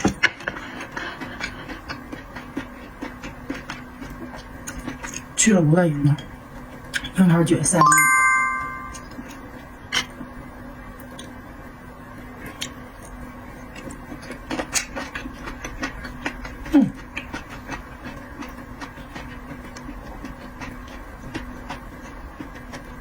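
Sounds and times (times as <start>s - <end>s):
chewing crunches and clicks: 0.2s - 5.4s, 11.0s - 11.4s, 12.4s - 23.0s.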